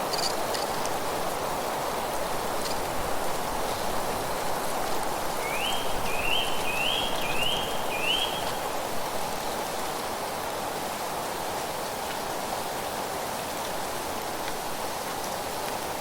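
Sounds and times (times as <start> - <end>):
rustling leaves: 0.0 - 16.0
wind: 0.0 - 16.0
bird whistling song: 5.4 - 8.6.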